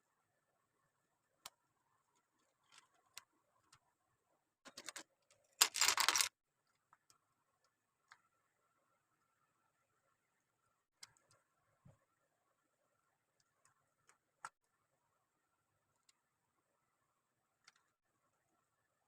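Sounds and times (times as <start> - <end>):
loose plastic pieces rattling: 5.6 - 6.3
plastic bricks clicking together: 5.6 - 6.3.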